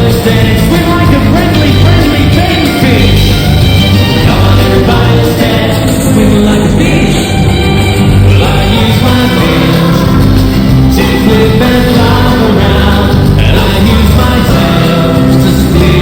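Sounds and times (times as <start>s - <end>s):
live band music: 0.0s - 16.0s
person singing: 0.0s - 16.0s.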